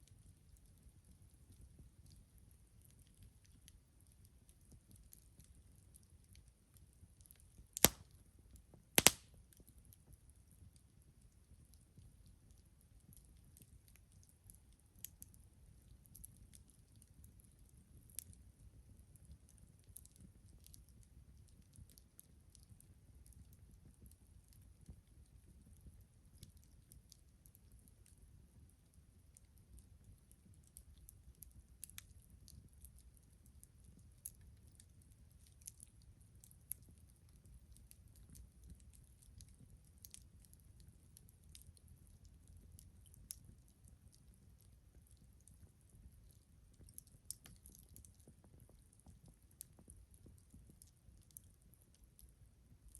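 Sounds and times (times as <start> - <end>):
campfire wood crackling: 7.8 - 8.0, 9.0 - 9.3.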